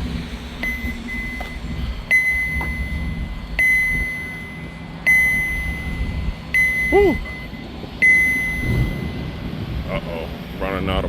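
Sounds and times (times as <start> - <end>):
low rumble: 0.0 - 11.0
high electronic warning beeps: 0.6 - 9.4.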